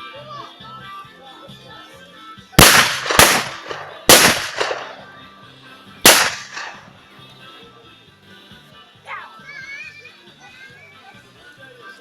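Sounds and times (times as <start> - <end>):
music: 0.0 - 12.0
firecracker bangs: 2.6 - 5.1, 6.1 - 6.9.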